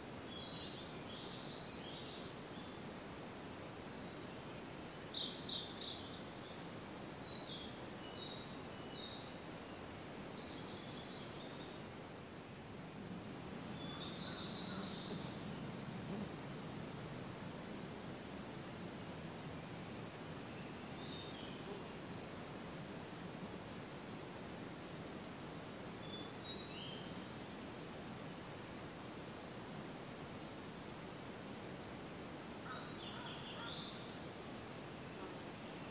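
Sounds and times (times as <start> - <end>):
steady outdoor hiss: 0.0 - 35.9
songbirds singing and chirping: 4.1 - 24.1, 25.7 - 27.7, 32.5 - 35.9.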